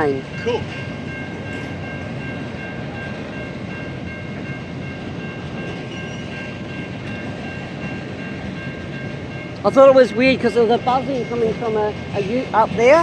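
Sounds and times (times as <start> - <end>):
freight train wagons rumbling: 0.0 - 13.0.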